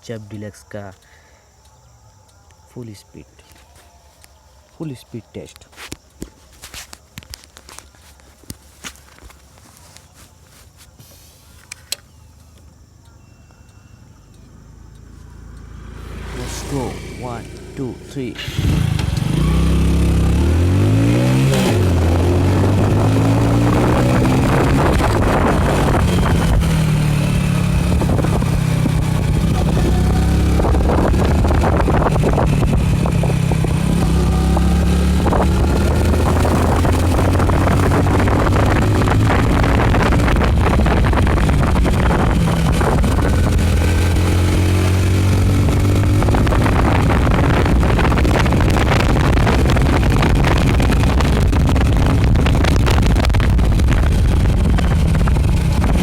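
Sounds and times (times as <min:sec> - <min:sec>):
motorcycle engine at full throttle: 0:14.5 - 0:56.0
wind buffeting microphone: 0:18.4 - 0:56.0.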